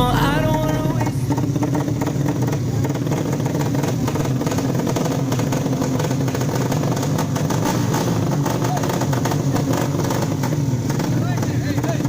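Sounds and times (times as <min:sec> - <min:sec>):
background music: 0:00.0 - 0:01.4
motorcycle engines running: 0:00.0 - 0:12.0.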